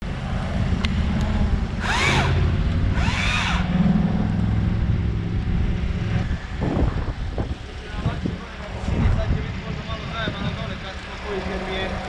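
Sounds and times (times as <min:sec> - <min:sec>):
chainsaw revving whine: 0:01.4 - 0:05.7
chainsaw motor running: 0:01.6 - 0:04.0.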